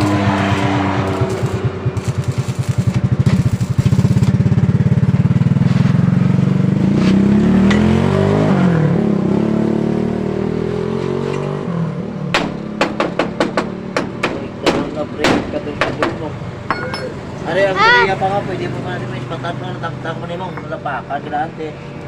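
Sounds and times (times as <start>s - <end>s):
motorcycle engine revving: 0.0s - 12.8s
sharp knocks: 12.3s - 17.2s.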